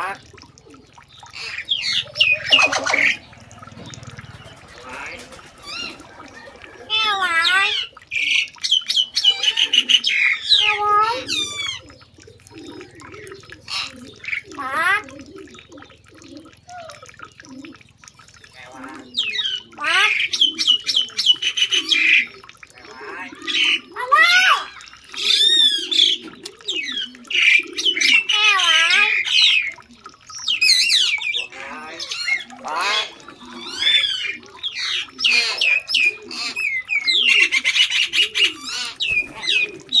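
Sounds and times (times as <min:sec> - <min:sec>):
birds chirping: 0:00.0 - 0:40.0
doves cooing: 0:00.0 - 0:40.0
low soft animal calls: 0:00.0 - 0:40.0
bird rattling call: 0:01.3 - 0:07.0
animal squeals: 0:01.3 - 0:07.9, 0:09.2 - 0:12.0, 0:31.6 - 0:36.6.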